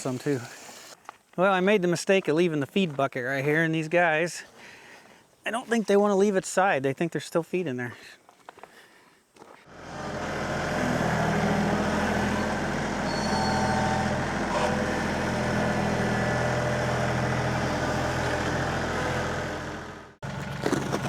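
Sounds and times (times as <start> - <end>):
tractor diesel engine running: 9.7 - 21.0.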